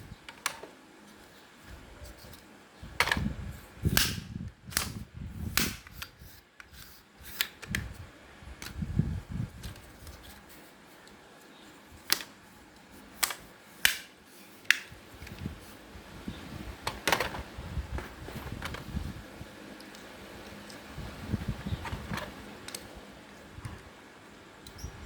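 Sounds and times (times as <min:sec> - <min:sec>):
plastic cracking and snapping: 0:12.0 - 0:12.4, 0:13.2 - 0:14.1.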